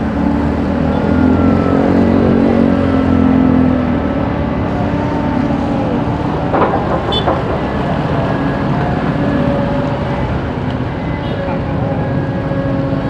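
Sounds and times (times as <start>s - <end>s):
diesel engine running: 0.0s - 13.0s
sharp knocks: 6.4s - 8.3s.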